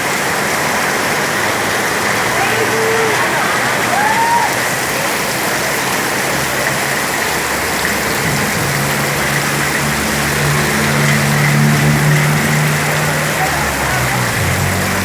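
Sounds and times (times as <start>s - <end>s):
heavy rain pouring: 0.0s - 15.0s
low engine hum: 6.4s - 15.0s.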